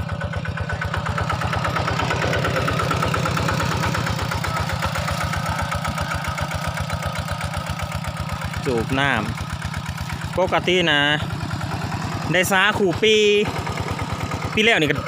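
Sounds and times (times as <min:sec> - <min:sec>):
engine idling with low chug: 0:00.0 - 0:15.0.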